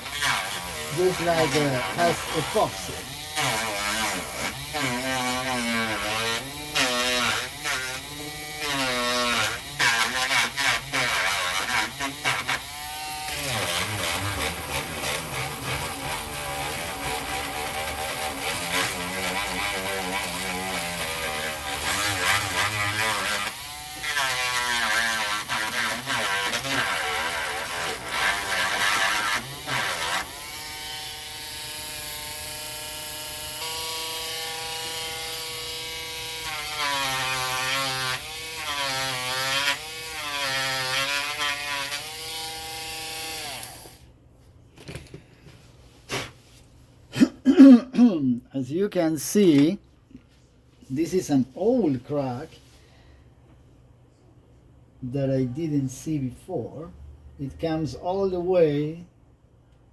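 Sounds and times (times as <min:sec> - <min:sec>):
rotary tool grinding: 0:00.0 - 0:44.0.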